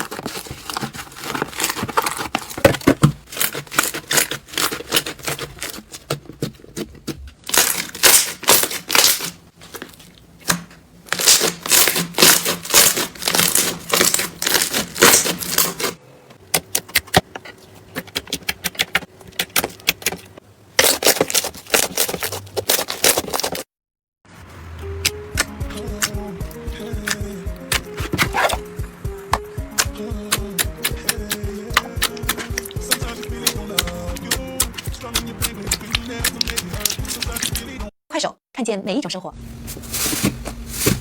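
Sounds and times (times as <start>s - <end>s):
slime crackling and popping: 7.4s - 10.0s, 11.1s - 15.9s.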